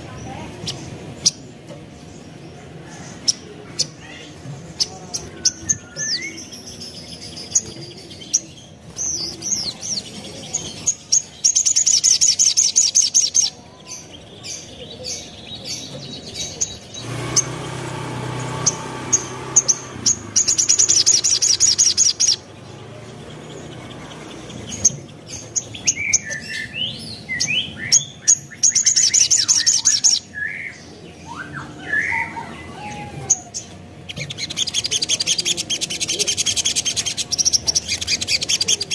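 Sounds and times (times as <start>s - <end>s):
bird trilling and chirping: 0.0s - 38.9s.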